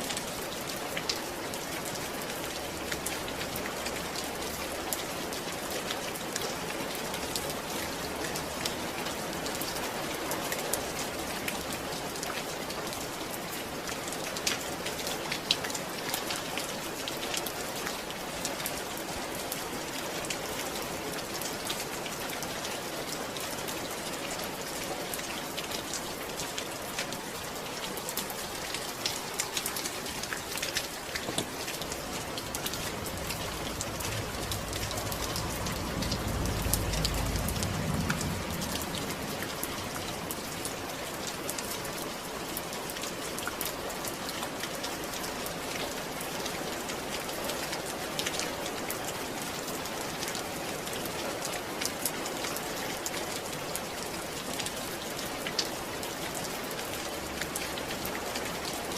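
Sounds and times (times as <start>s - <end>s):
loud raindrops: 0.0s - 58.9s
steady rain falling: 0.0s - 58.9s.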